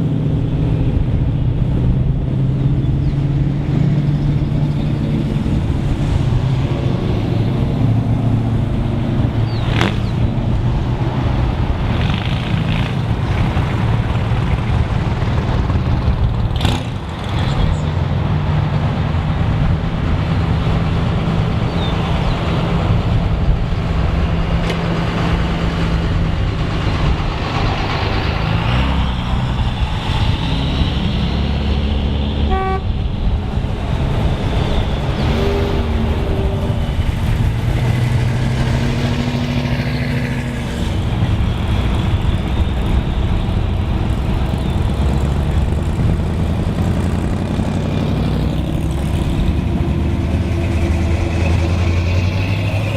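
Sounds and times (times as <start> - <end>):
loud car engines rumbling by: 0.0 - 52.9
car horn toot: 32.5 - 32.9.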